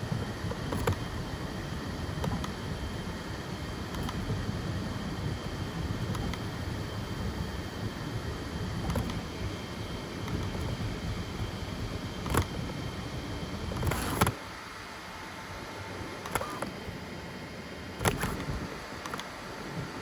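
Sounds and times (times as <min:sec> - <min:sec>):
stepper motors whirring: 0:13.6 - 0:14.4, 0:16.2 - 0:16.8
sharp clicks: 0:16.2 - 0:16.8, 0:18.0 - 0:19.3.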